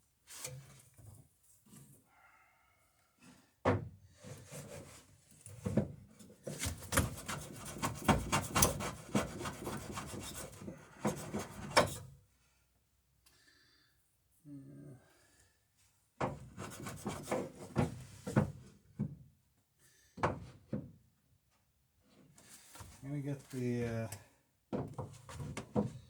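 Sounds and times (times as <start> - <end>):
hand plane shaving wood: 6.5 - 11.8, 16.4 - 17.8.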